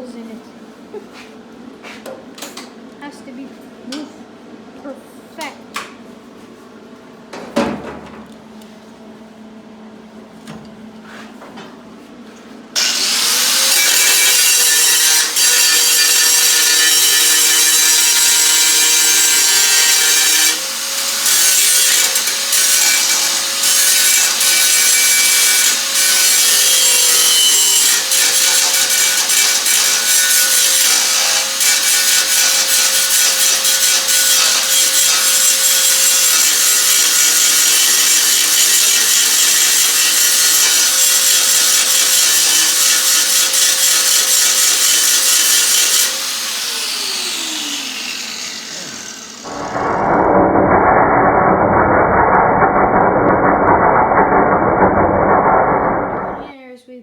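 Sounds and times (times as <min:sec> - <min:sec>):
angle grinder grinding metal: 0:12.8 - 0:56.4.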